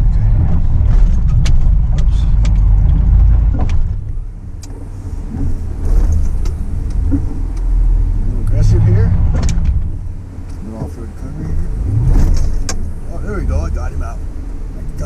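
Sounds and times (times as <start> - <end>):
truck engine rumble: 0.0 - 15.0.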